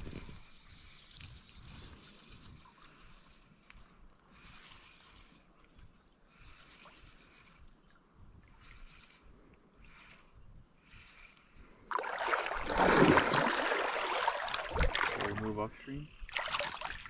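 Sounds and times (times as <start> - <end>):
insects droning: 0.0 - 17.0
water rushing: 11.9 - 17.0.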